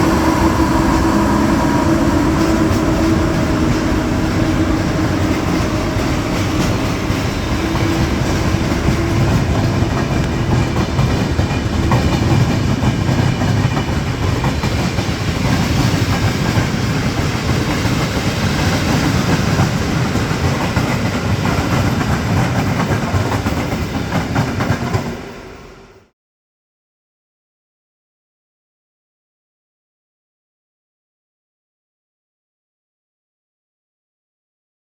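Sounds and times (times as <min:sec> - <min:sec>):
train wheels clattering on rails: 0:00.0 - 0:26.0.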